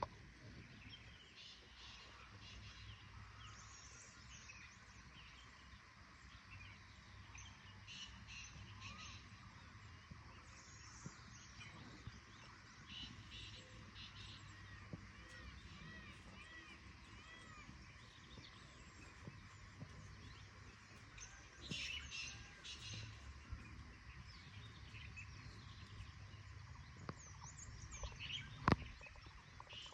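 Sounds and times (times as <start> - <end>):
low steady hum: 0.0 - 29.9
birds chirping and calling: 6.6 - 29.9.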